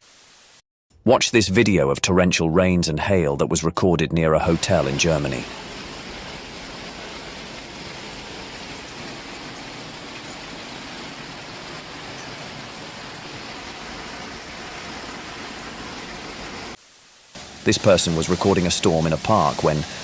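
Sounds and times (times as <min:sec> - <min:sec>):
torrential rain and hail: 0:04.5 - 0:20.0.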